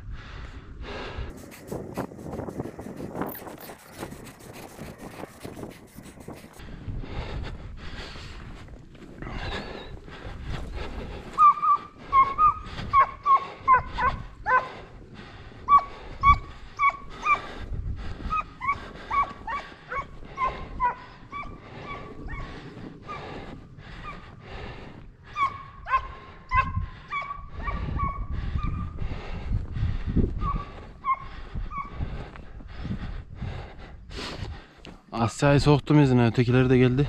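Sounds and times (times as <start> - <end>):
hounds yelping: 11.2 - 14.8, 15.6 - 17.6, 18.2 - 24.3, 25.3 - 29.0, 30.4 - 32.0.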